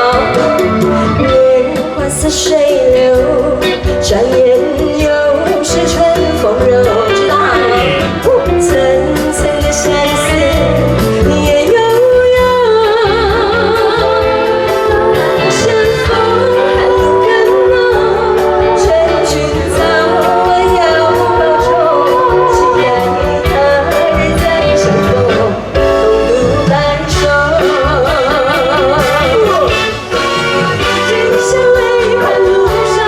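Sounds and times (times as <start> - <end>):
band playing a steady beat: 0.0 - 33.0
person singing with vibrato: 0.0 - 33.0.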